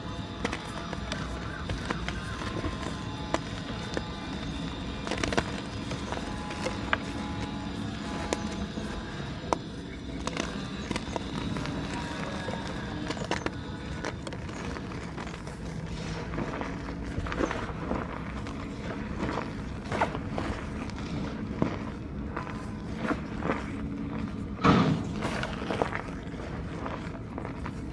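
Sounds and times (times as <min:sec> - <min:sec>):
chalk being crushed: 0:00.0 - 0:22.0.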